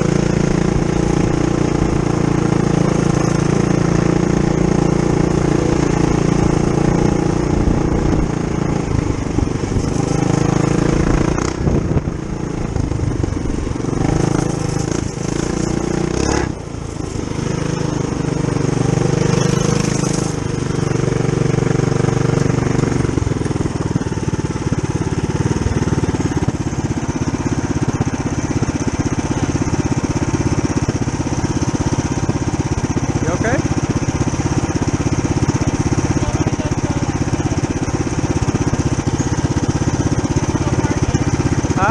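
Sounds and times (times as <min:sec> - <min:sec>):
mini bike engine revving: 0:00.0 - 0:41.9.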